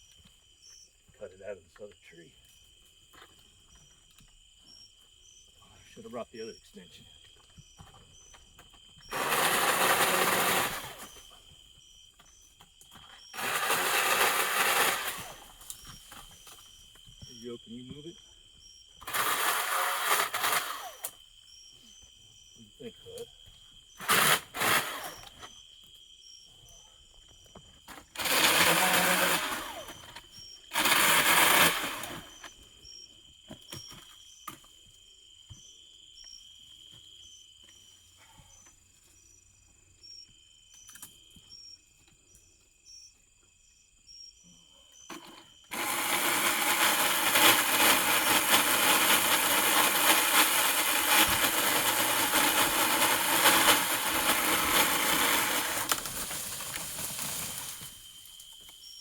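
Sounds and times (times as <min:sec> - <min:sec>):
electric pole saw cutting wood: 0:09.1 - 0:11.2, 0:13.4 - 0:15.6, 0:19.0 - 0:21.2, 0:24.0 - 0:25.4, 0:28.2 - 0:32.4, 0:45.7 - 0:57.9.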